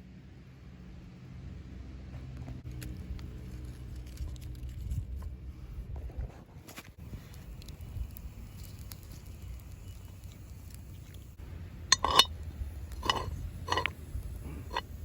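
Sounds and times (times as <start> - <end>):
low steady rumble: 7.0 - 15.0
metal utensils clinking on skillet: 11.9 - 12.3, 13.0 - 13.9.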